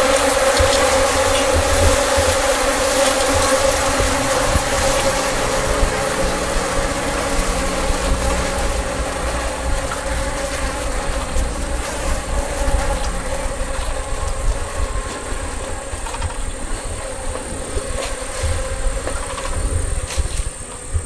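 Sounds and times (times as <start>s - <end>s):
honeybees buzzing: 0.0s - 21.0s
low rumble: 3.4s - 18.0s.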